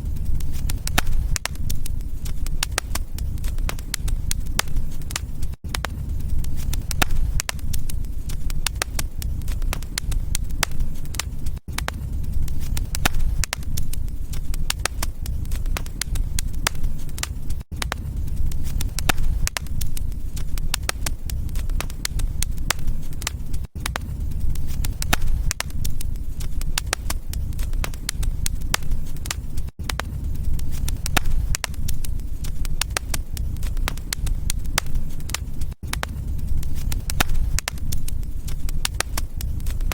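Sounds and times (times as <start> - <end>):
low steady fire rumble: 0.0 - 39.9
wood fire crackling and popping: 0.0 - 39.9.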